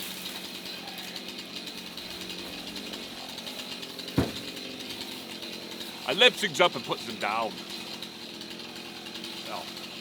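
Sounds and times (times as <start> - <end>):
chainsaw running: 0.0 - 10.0
short knock: 4.2 - 4.4.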